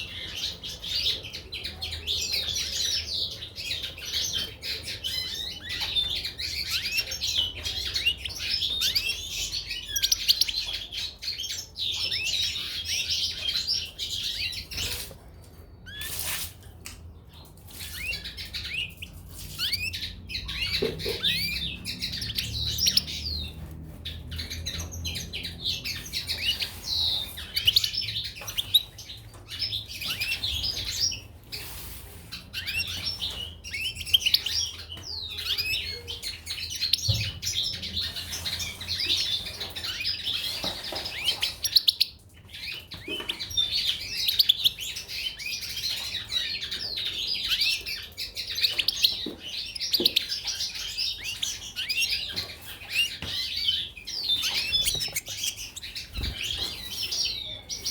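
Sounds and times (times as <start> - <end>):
birds chirping and twittering: 0.0 - 57.9.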